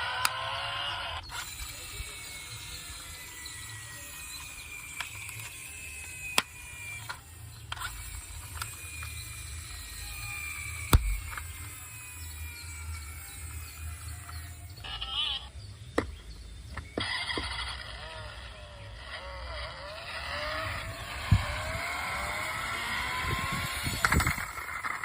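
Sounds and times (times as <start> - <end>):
faint high whine: 0.0 - 15.7
toy car mechanisms whirring: 0.0 - 15.8, 16.5 - 25.0.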